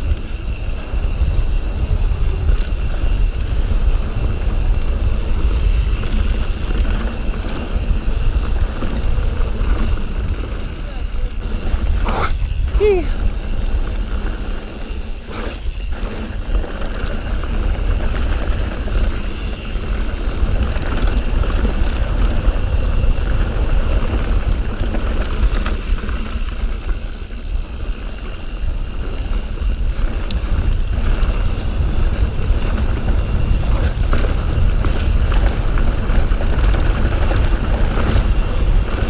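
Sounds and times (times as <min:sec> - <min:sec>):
bike tyre rumble: 0:00.0 - 0:39.0
wind buffeting microphone: 0:00.0 - 0:39.0
bike knocks and rattles: 0:29.4 - 0:39.0.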